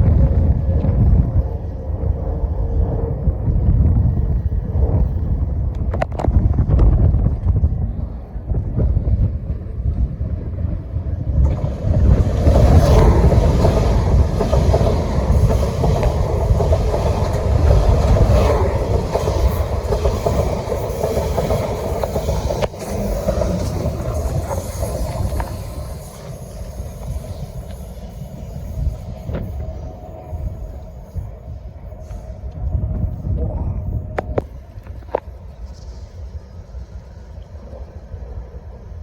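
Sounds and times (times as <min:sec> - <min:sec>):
train running along rails: 0:00.0 - 0:39.0
wind rumble on microphone: 0:00.0 - 0:39.0
train wheel clicks: 0:11.4 - 0:28.3.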